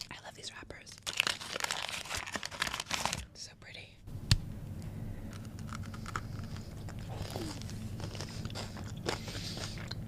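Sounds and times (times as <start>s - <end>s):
chewing chocolate: 5.3s - 10.0s.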